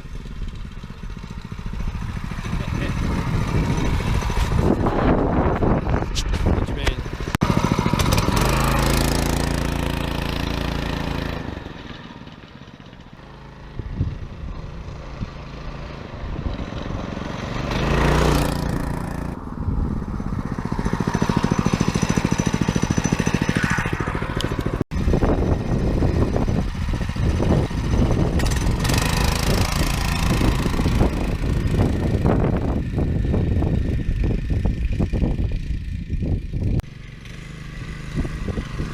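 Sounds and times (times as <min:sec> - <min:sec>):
small dirt bike engine running: 0:00.0 - 0:38.9.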